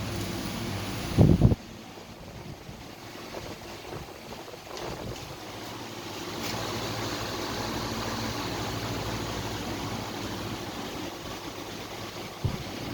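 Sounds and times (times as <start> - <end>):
belt sander running: 6.3 - 11.2.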